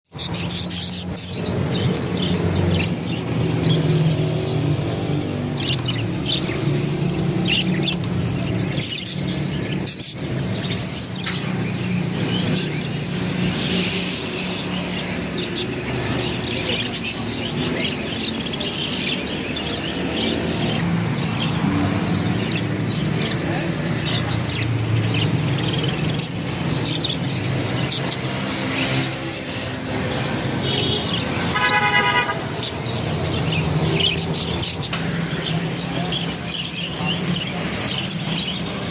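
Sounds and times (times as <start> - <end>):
caged birds chirping: 0.0 - 38.9
street traffic rumbling: 0.0 - 38.9
vehicle horn: 31.5 - 32.5.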